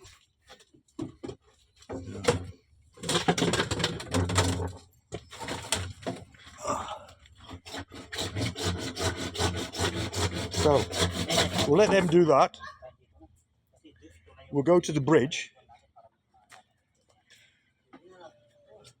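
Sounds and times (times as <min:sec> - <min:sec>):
hand saw strokes: 0:07.4 - 0:12.4.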